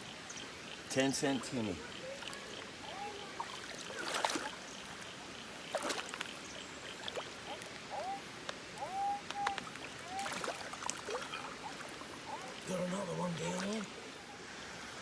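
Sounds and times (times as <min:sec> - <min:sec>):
creek water running: 0:00.0 - 0:15.0.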